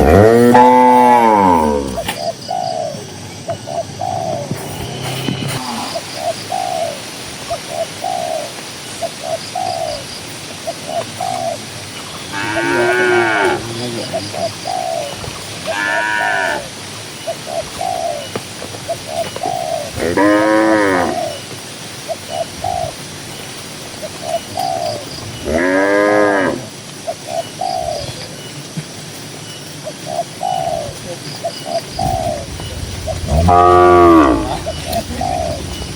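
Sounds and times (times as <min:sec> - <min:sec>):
cattle mooing: 0:00.0 - 0:02.0, 0:12.3 - 0:13.9, 0:15.7 - 0:16.7, 0:20.0 - 0:21.2, 0:33.1 - 0:35.8
dove cooing: 0:00.0 - 0:29.2, 0:29.8 - 0:35.9
faint bird chirps: 0:27.0 - 0:35.9.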